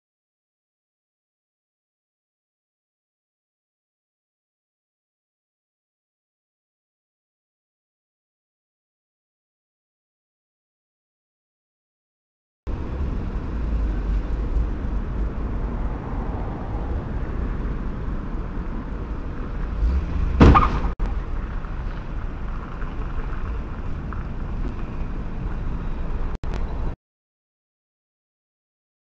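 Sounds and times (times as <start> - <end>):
street traffic rumble: 12.7 - 27.0
sharp loud bang: 20.4 - 21.0.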